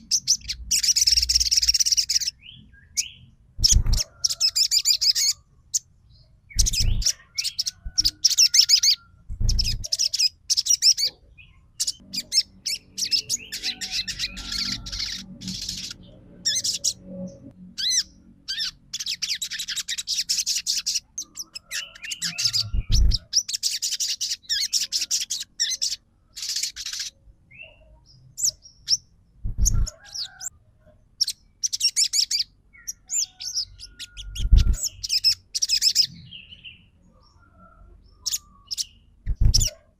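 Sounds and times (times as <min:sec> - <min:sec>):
bird chattering song: 0:00.0 - 0:30.5, 0:31.2 - 0:39.8
low thumps: 0:29.4 - 0:29.9.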